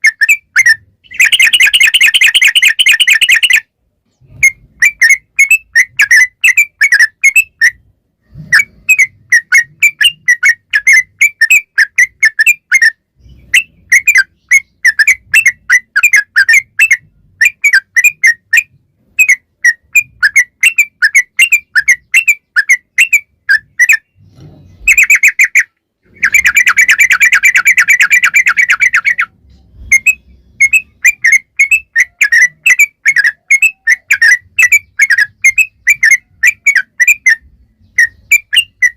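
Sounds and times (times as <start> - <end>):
bird chirping and trilling: 0.0 - 38.9.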